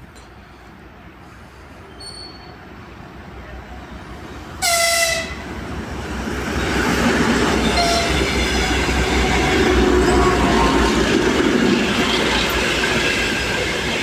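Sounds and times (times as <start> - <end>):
express train rumble: 0.0 - 14.0
locomotive horn blast: 4.6 - 5.5, 7.6 - 8.4.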